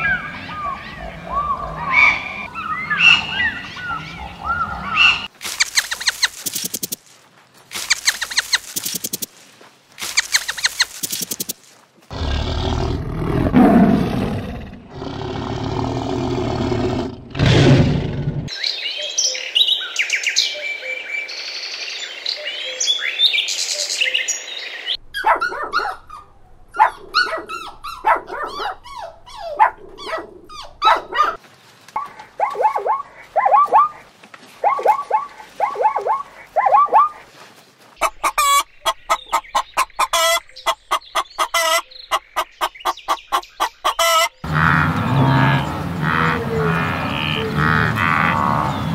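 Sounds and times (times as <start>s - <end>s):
high chirping: 4.9s - 7.0s, 7.7s - 9.3s, 10.0s - 11.6s
fowl rattling calls: 5.0s - 7.0s, 7.7s - 9.3s, 10.0s - 11.6s, 38.0s - 44.7s
tiger growling: 12.1s - 18.5s
small dogs yapping: 25.2s - 31.4s, 32.0s - 34.0s, 34.6s - 37.2s.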